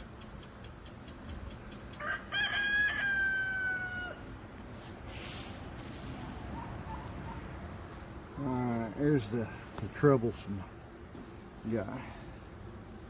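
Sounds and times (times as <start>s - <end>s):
rooster crowing: 1.9s - 4.3s.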